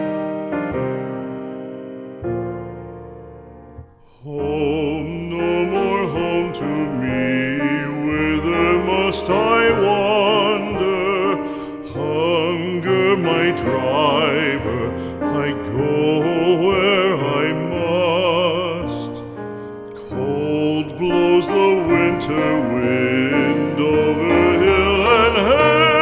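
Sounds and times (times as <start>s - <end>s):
piano accompaniment: 0.0s - 26.0s
singer with strong vibrato: 20.3s - 26.0s.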